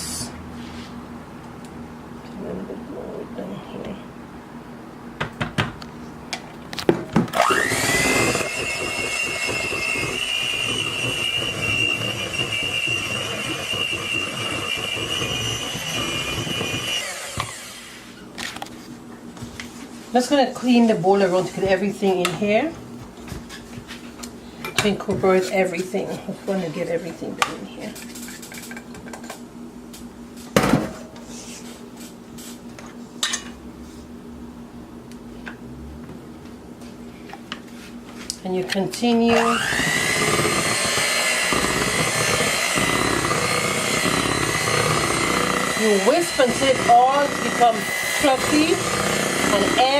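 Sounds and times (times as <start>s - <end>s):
electric mixer whine: 7.3s - 18.1s, 39.2s - 49.9s
utensil scraping a mixing bowl: 7.4s - 17.5s, 39.3s - 49.9s
mixer clicks: 39.3s - 49.9s.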